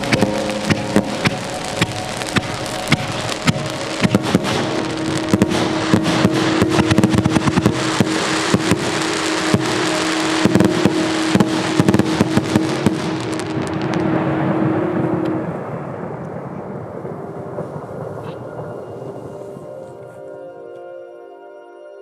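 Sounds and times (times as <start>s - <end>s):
steady held tone: 0.0s - 11.6s
fireworks crackling: 0.0s - 20.2s.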